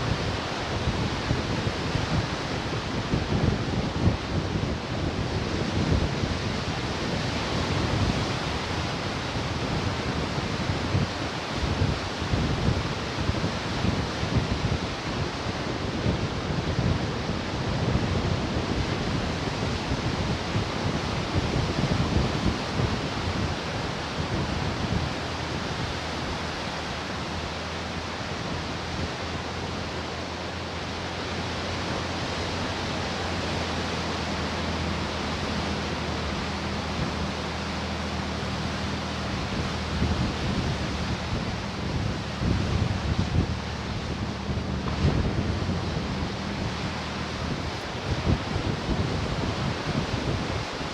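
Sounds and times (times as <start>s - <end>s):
ocean surf washing ashore: 0.0s - 50.9s
wind buffeting microphone: 0.0s - 50.9s.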